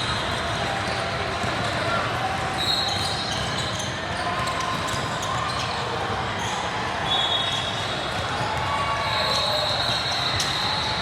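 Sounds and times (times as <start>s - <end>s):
shoe squeaks: 2.5s - 8.0s, 9.0s - 11.0s.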